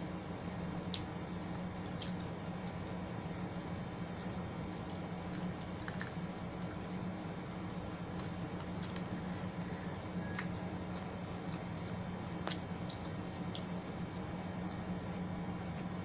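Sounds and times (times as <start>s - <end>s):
steady low hum: 0.0s - 16.0s
squishy chewing: 3.6s - 14.9s.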